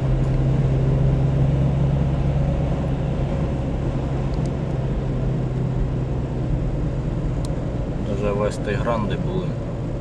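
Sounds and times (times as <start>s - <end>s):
car engine drone: 0.0s - 10.0s.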